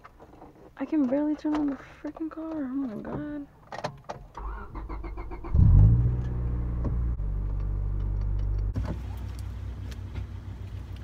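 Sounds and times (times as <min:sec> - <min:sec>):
car engine starting and idling: 0:04.2 - 0:11.0.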